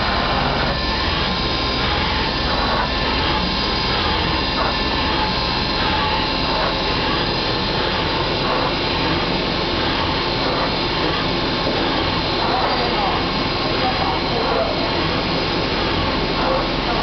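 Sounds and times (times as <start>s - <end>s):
machine running: 0.0s - 17.0s.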